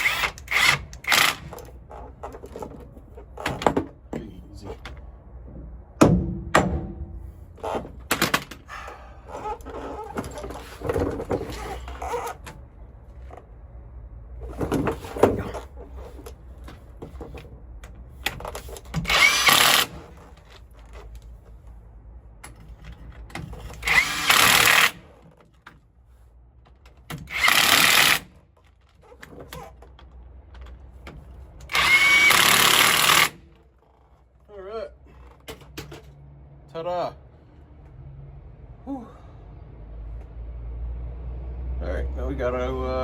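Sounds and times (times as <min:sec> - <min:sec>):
impact wrench running down bolts: 0:00.0 - 0:01.7, 0:19.0 - 0:20.2, 0:23.8 - 0:25.2, 0:27.2 - 0:28.4, 0:31.7 - 0:33.4
impact wrench whine: 0:00.0 - 0:02.0, 0:19.0 - 0:20.3, 0:23.8 - 0:25.2, 0:27.1 - 0:28.4, 0:31.7 - 0:34.1.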